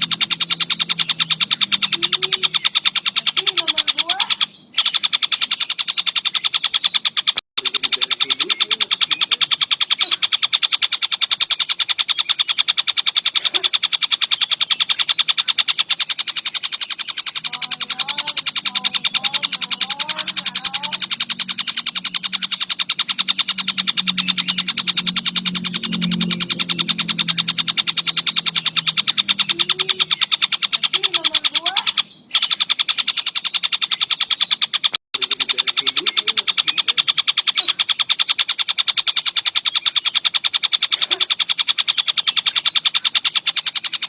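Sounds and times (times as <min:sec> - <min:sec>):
kingfisher chattering call: 0:00.0 - 0:44.0.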